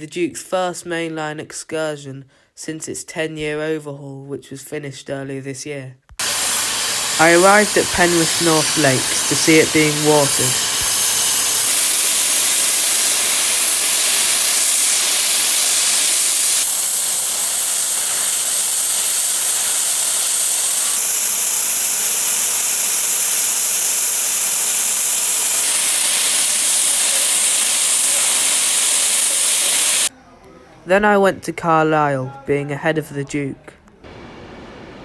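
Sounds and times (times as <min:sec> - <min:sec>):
steam hissing from locomotive: 0:06.2 - 0:30.1.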